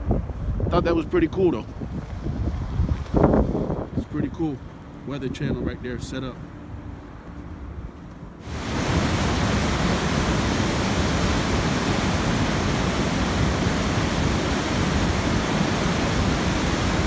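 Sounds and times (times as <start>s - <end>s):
steady rushing hiss: 8.4s - 17.0s.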